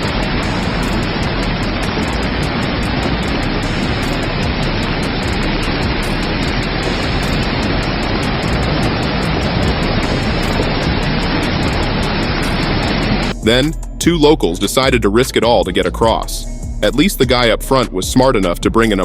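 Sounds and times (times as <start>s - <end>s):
river rushing in rapids: 0.0s - 13.6s.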